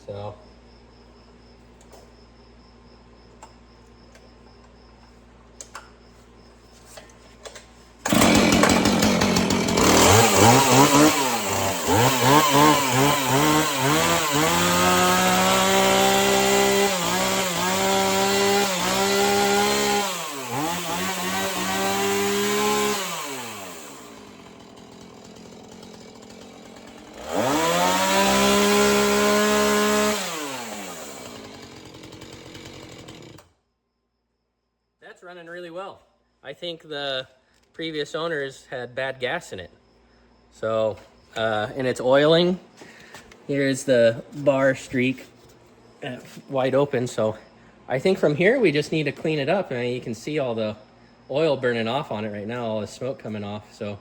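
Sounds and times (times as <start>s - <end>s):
chainsaw engine revving: 8.0s - 33.5s.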